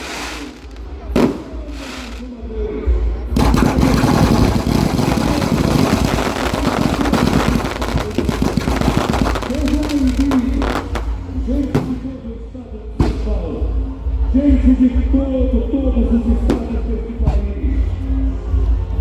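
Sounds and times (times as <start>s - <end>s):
fireworks crackling and popping: 0.0s - 2.3s, 3.4s - 12.3s.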